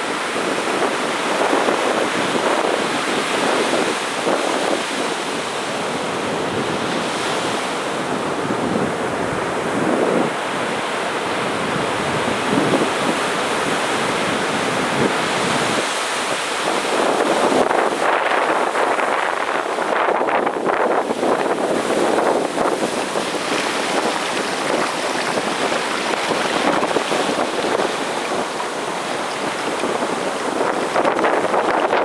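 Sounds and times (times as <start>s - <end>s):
sea waves breaking on beach: 0.0s - 32.0s.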